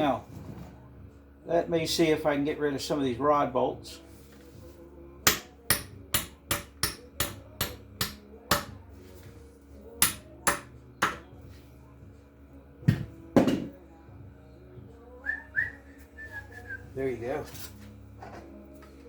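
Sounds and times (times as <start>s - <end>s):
hammer blows on metal: 5.3s - 8.8s.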